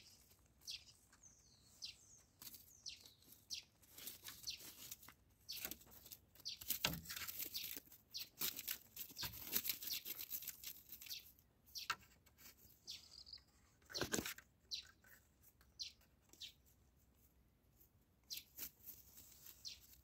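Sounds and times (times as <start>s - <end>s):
faint bird chirps: 0.0s - 4.8s, 10.9s - 16.6s, 18.2s - 18.6s, 19.3s - 20.0s
brief rustle: 13.8s - 15.3s.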